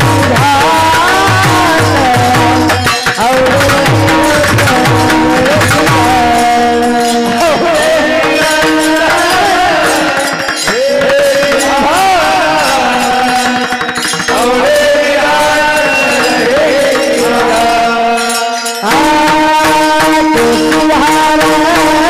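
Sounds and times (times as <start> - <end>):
drum and cymbal strokes: 0.0 - 22.0
person singing ornamented melody: 0.0 - 22.0.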